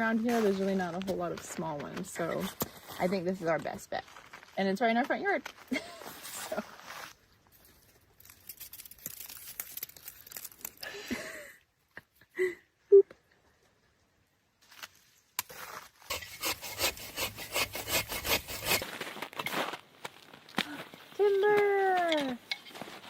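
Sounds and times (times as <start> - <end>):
saw cutting through tree trunk: 16.1 - 18.9
rubbing among branches: 16.1 - 19.0.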